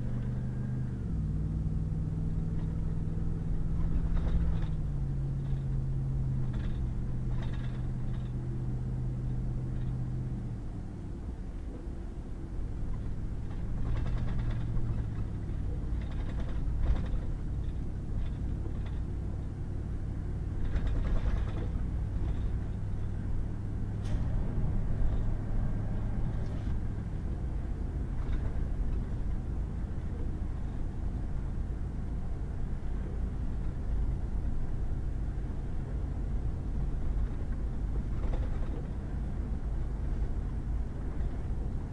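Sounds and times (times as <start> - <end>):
road noise: 0.0 - 41.9
truck engine drone: 0.0 - 41.9
knocks and clatters: 3.7 - 8.4, 12.9 - 19.1, 20.6 - 22.8, 28.1 - 29.4, 37.1 - 39.0.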